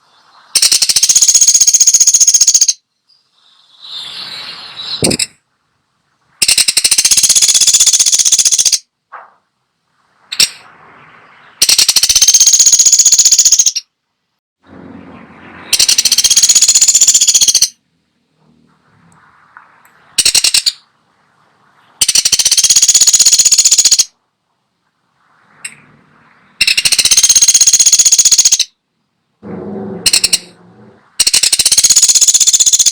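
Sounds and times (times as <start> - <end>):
woodpecker rattling trills: 0.6 - 2.8, 6.4 - 8.8, 11.6 - 13.9, 15.7 - 17.8, 20.2 - 20.9, 22.0 - 24.1, 26.6 - 28.7, 29.5 - 32.9.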